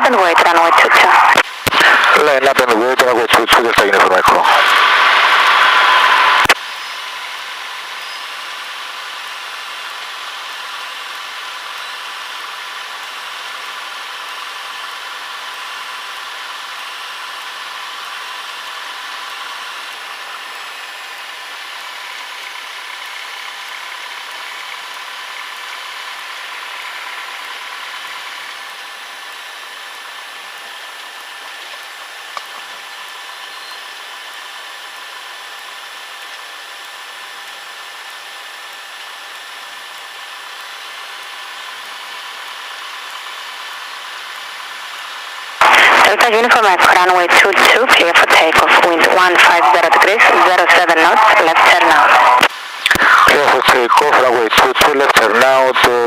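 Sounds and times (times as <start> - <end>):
propeller aircraft engine idling: 1.8 - 38.4.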